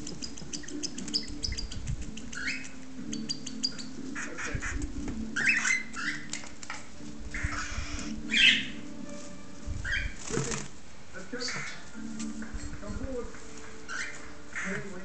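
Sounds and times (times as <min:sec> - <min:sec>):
bird chick clicking: 0:00.0 - 0:04.0, 0:05.9 - 0:06.9
raspy begging calls: 0:00.0 - 0:06.4, 0:07.3 - 0:08.9, 0:11.3 - 0:12.0, 0:13.8 - 0:15.0.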